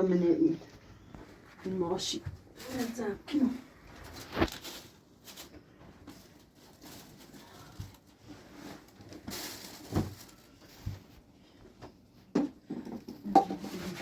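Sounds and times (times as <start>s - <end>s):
rustling: 0.6s - 12.3s
objects knocking and thumping: 11.8s - 14.0s.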